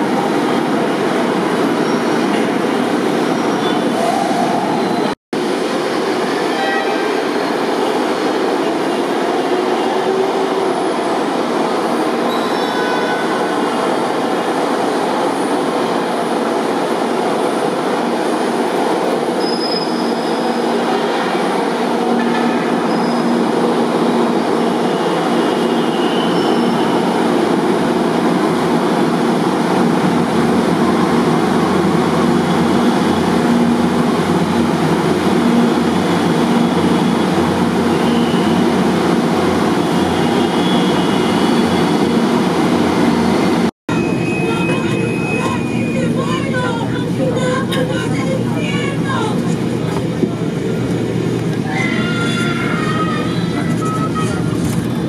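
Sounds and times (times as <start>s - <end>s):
train wheel and rail rumble: 0.0s - 55.0s.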